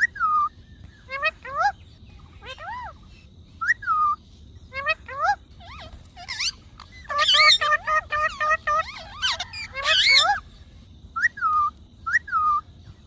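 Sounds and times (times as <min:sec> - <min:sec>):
parrot chattering and whistling: 0:00.0 - 0:10.5.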